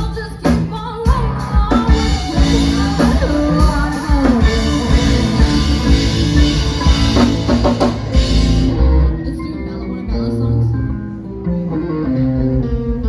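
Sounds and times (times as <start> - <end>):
drum kit: 0.0 - 9.2
person singing: 0.0 - 11.2
bass guitar: 0.0 - 13.0
electric guitar: 0.0 - 13.0.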